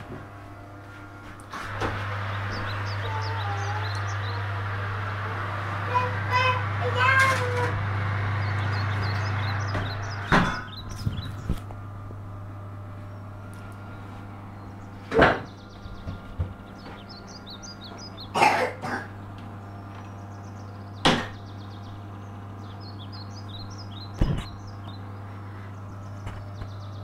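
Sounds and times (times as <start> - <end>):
electric oven humming: 0.0 - 27.0
sharp knocks: 9.7 - 10.8.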